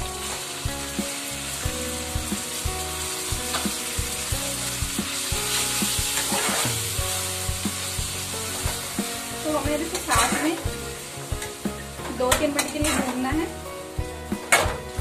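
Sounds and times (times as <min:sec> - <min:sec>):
vegetables sizzling in hot oil: 0:00.0 - 0:15.0
spatula scraping a pan: 0:05.5 - 0:07.0, 0:09.9 - 0:10.5, 0:12.4 - 0:13.2.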